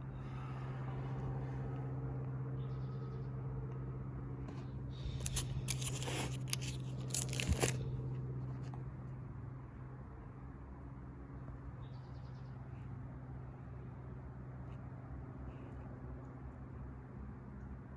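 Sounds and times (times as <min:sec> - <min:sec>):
low room hum: 0:00.0 - 0:17.9
photo album pages rustling: 0:04.5 - 0:09.0.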